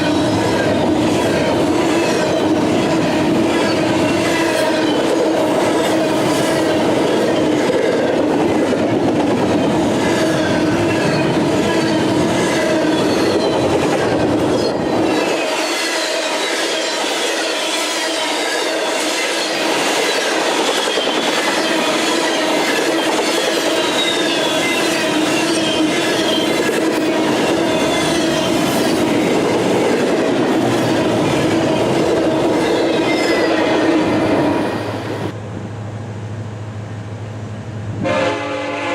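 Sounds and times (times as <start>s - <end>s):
train wheels clattering: 0.0s - 34.6s
high-pitched wheel squeal: 10.1s - 13.8s, 14.4s - 29.0s.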